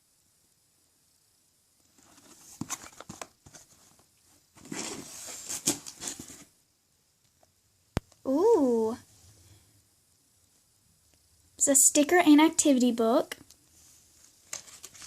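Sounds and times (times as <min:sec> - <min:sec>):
plastic packaging crinkling: 0:14.4 - 0:15.0.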